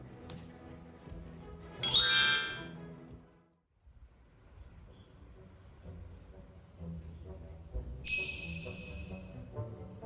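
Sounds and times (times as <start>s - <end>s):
faint background music: 0.0s - 10.0s
ringing chime: 1.8s - 2.7s, 8.1s - 9.4s.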